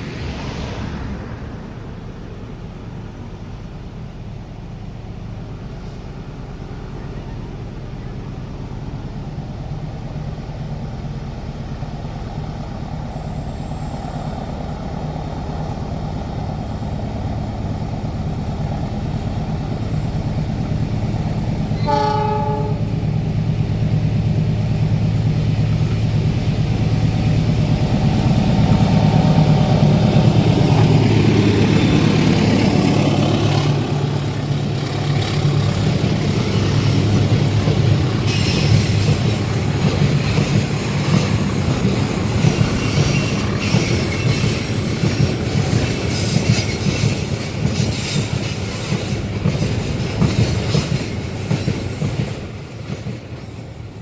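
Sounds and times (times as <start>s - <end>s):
diesel locomotive engine drone: 0.0s - 54.0s
rushing rail noise: 0.0s - 54.0s
train horn blast: 21.8s - 22.9s.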